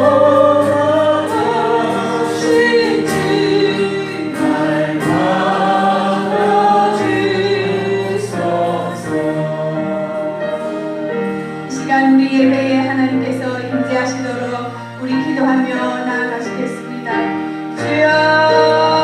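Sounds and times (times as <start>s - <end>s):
group singing a hymn: 0.0s - 12.5s.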